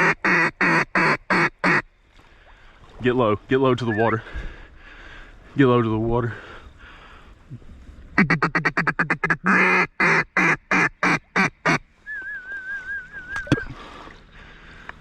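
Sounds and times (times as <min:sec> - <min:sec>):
duck call quacks: 0:00.0 - 0:01.8, 0:08.2 - 0:11.8
warbling whistle: 0:12.0 - 0:13.7.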